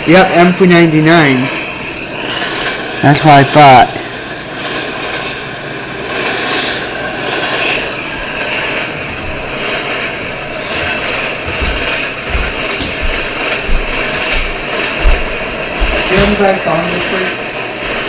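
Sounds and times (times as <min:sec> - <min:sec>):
freight train rumbling past: 0:00.0 - 0:18.0
low thumps: 0:08.0 - 0:18.0.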